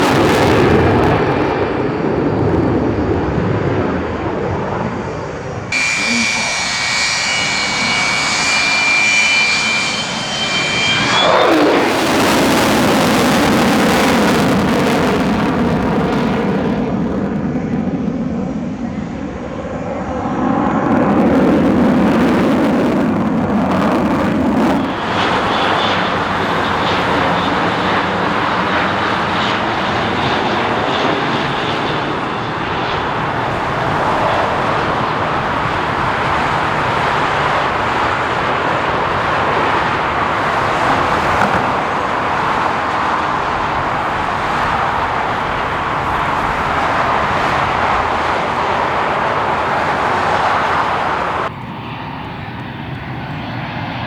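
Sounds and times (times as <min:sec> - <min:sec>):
aircraft engine noise: 0:00.0 - 0:54.0.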